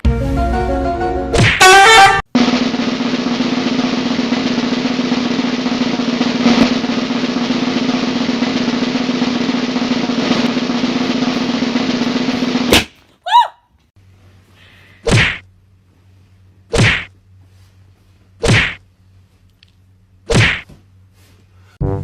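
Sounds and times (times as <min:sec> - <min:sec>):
snare drum roll: 0:02.3 - 0:12.9
sharp snare drum hit: 0:02.4 - 0:12.9.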